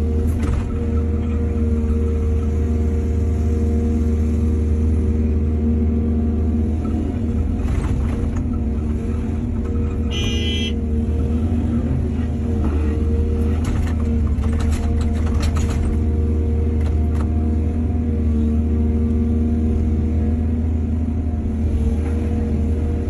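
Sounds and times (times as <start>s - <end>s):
excavator diesel engine running: 0.0s - 23.0s
knocks and clatters: 13.5s - 16.1s.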